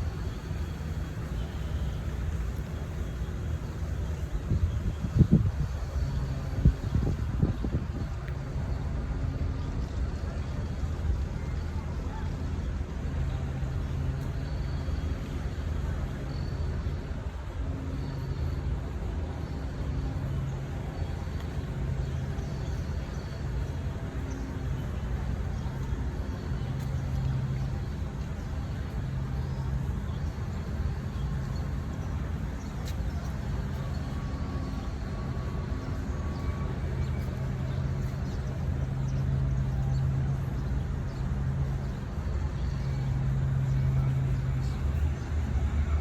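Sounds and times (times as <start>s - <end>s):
road traffic rumble: 0.0s - 46.0s.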